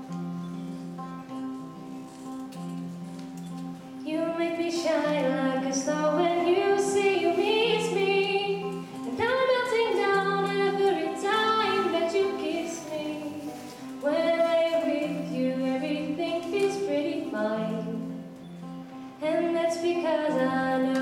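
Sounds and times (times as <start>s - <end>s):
instrumental accompaniment: 0.0s - 21.0s
woman singing: 4.0s - 18.2s, 19.2s - 21.0s.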